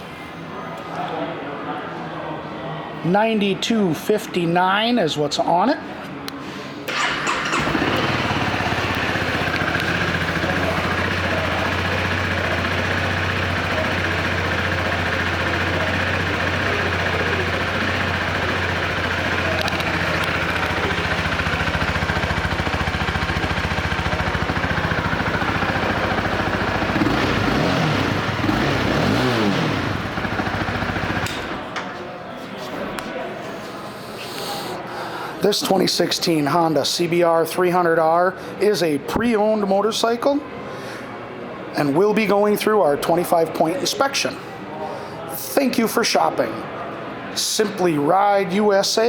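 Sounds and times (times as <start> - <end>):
motorcycle engine idling and revving: 6.9 - 31.7.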